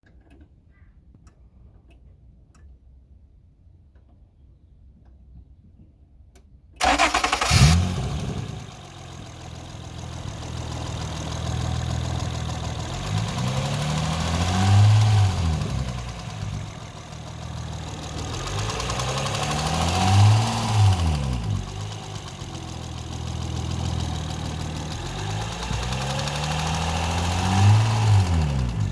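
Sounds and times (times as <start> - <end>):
car engine revving: 6.8 - 28.9
car engine starting and idling: 6.8 - 28.9.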